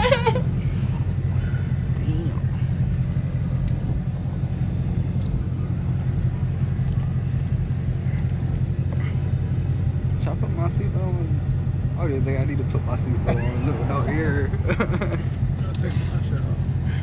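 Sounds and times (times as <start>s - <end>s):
car engine rumble: 0.0s - 17.0s
road noise: 0.0s - 17.0s.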